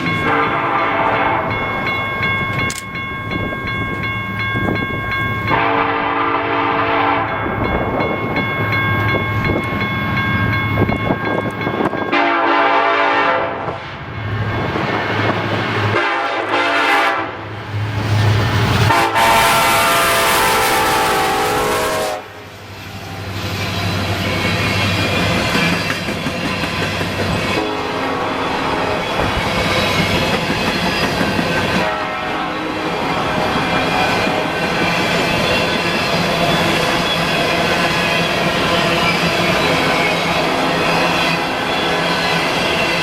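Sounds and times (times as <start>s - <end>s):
moving train rumble: 0.0s - 43.0s
locomotive air horn blasts: 0.2s - 1.5s, 5.5s - 7.4s, 12.1s - 13.8s, 15.9s - 17.4s, 18.9s - 22.5s, 27.6s - 29.1s, 31.8s - 34.6s.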